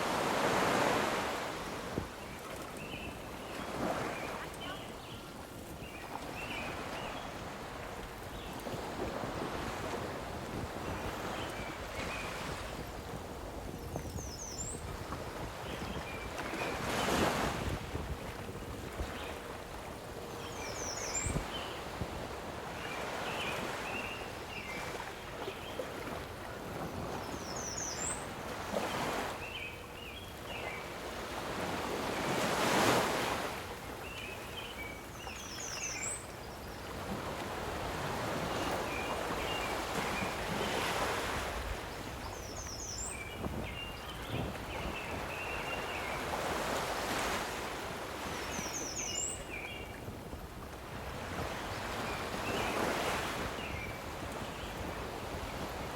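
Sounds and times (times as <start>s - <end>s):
waves washing against shore: 0.0s - 13.6s, 14.9s - 20.3s
wind: 0.0s - 55.9s.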